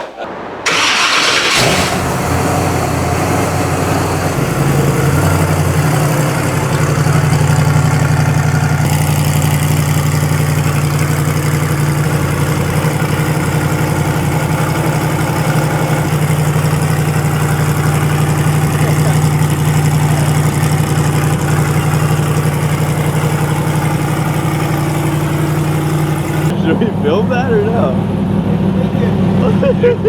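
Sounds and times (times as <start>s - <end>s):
vehicle engine idling: 0.3s - 30.0s.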